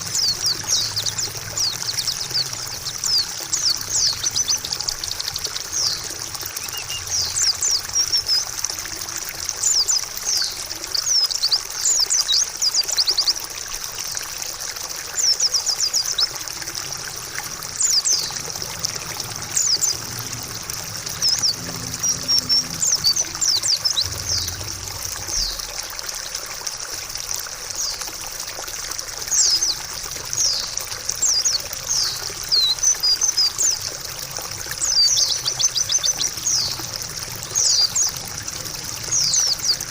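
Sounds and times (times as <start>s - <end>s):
bird chirping high runs: 0.0s - 8.5s, 15.2s - 25.8s
water trickling: 0.0s - 39.9s.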